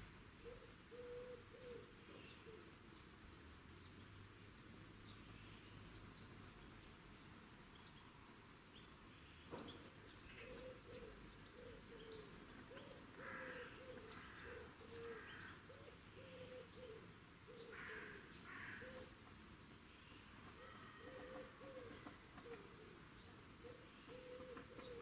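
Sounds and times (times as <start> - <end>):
low bird calls: 0.4 - 2.8, 9.4 - 19.2, 20.0 - 25.0.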